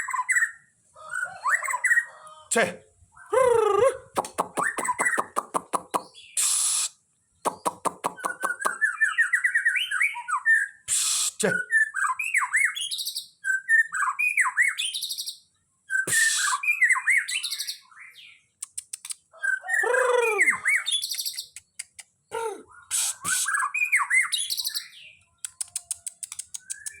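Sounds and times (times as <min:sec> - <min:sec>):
songbird singing whistled phrases: 0:00.0 - 0:00.7, 0:04.2 - 0:21.9, 0:22.6 - 0:27.0
bird rapid clicking notes: 0:04.2 - 0:06.6, 0:07.5 - 0:08.8, 0:18.6 - 0:19.2, 0:25.4 - 0:27.0.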